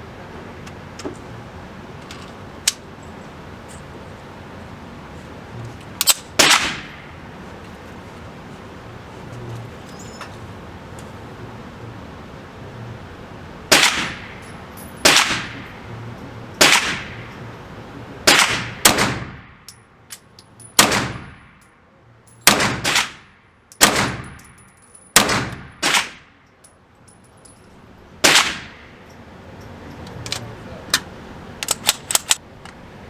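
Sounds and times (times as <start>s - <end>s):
gunshots with echo: 13.7s - 14.4s, 15.1s - 15.6s, 16.6s - 17.3s, 18.3s - 19.5s.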